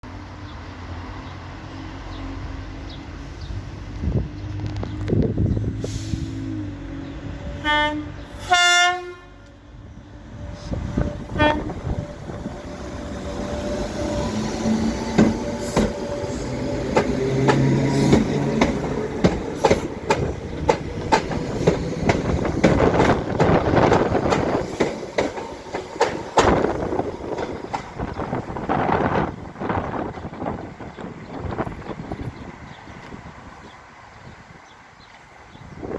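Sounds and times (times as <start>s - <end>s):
train horn: 7.5s - 9.6s, 10.5s - 13.2s
train wheels clicking over rail joints: 12.4s - 28.6s.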